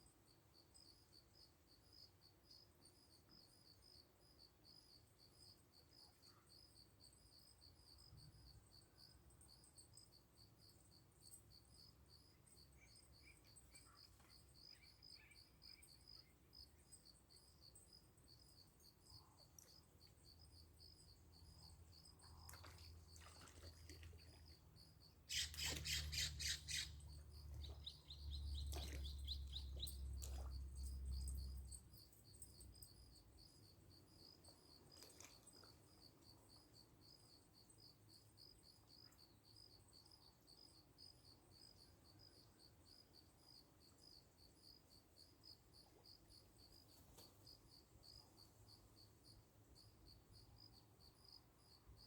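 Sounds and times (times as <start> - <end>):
crickets chirping: 0.0 - 52.0
bird chirps: 25.3 - 30.4.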